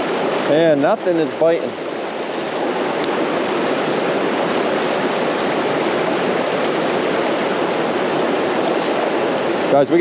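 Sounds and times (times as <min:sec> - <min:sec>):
creek water rushing over rocks: 0:00.0 - 0:10.0.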